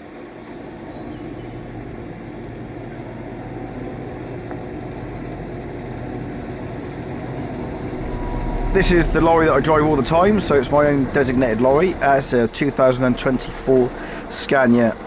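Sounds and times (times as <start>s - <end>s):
diesel lorry engine running: 0.1s - 15.0s.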